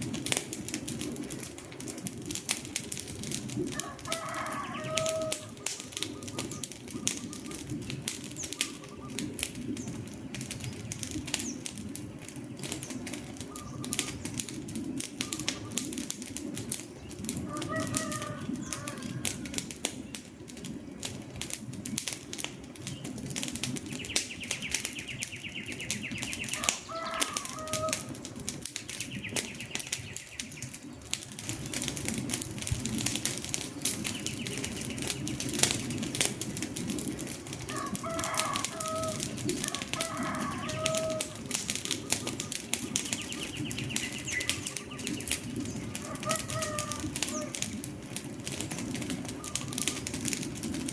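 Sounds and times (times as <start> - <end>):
low rumble of burning logs: 0.0 - 50.9
wood fire crackling and popping: 0.0 - 50.9
faint bird calls: 3.7 - 10.0, 12.4 - 16.1, 17.0 - 19.6, 23.9 - 28.2, 37.7 - 47.8, 49.1 - 50.3.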